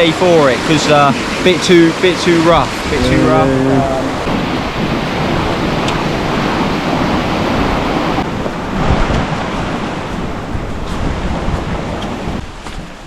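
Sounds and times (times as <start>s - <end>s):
river rushing over rocks: 0.1s - 8.7s
wind buffeting microphone: 0.7s - 13.0s.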